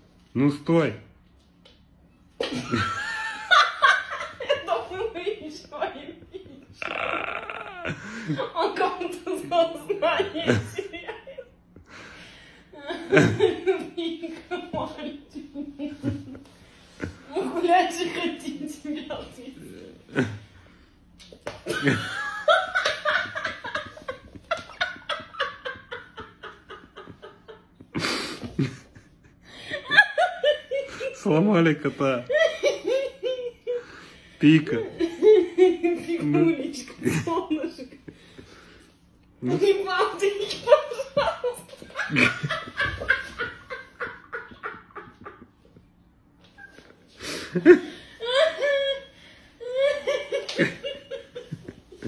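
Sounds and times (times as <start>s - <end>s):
woman laughing: 2.4s - 11.5s, 21.6s - 31.2s, 34.9s - 38.5s, 39.4s - 45.7s, 47.5s - 52.0s
person laughing: 6.8s - 8.5s.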